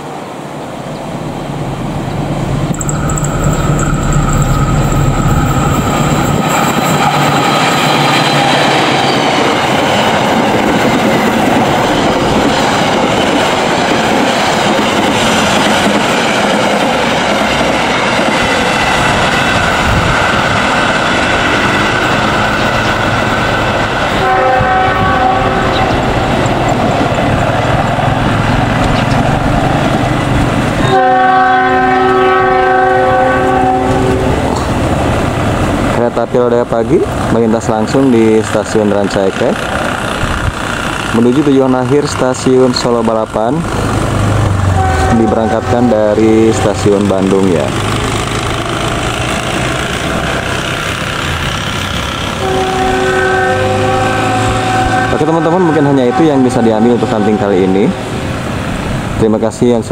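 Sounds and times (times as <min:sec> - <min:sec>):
train wheels rumbling and clattering: 0:01.2 - 0:59.9
pulsing tone: 0:02.2 - 0:08.5
train horn: 0:24.1 - 0:26.0, 0:30.8 - 0:34.5, 0:44.7 - 0:46.8, 0:52.4 - 0:57.9.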